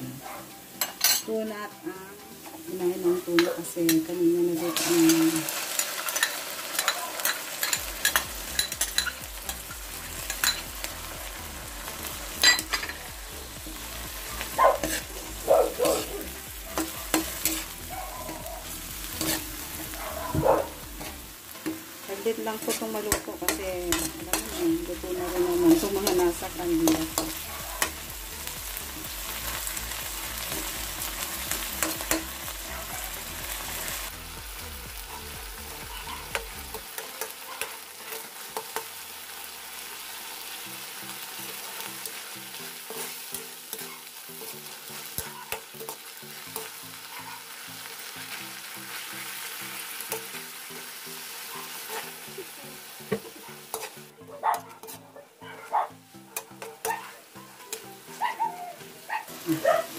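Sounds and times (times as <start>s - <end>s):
food sizzling in oil: 0.0s - 59.9s
metal spatula scraping a pan: 2.4s - 10.7s, 13.7s - 28.0s, 35.1s - 39.1s, 41.1s - 50.5s, 53.1s - 55.7s, 56.3s - 58.3s.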